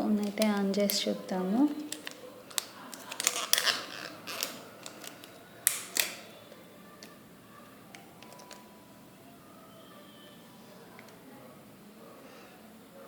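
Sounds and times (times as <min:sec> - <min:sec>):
smartphone handling clicks and creaks: 0:01.8 - 0:07.1, 0:07.9 - 0:08.6.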